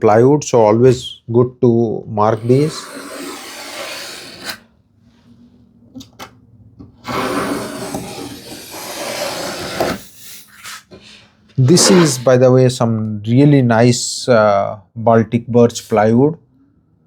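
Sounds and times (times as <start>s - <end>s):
knife scratching across plywood: 2.4s - 4.7s, 7.0s - 10.8s.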